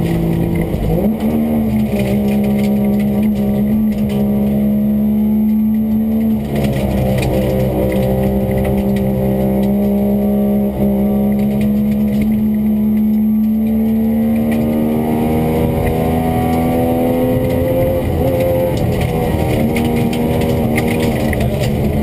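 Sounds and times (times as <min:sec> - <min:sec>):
rally car engine at high revs: 0:00.0 - 0:22.0.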